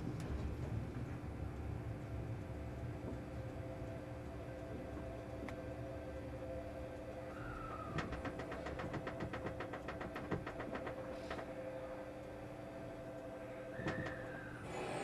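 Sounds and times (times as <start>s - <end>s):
train car hum: 0.0s - 15.0s.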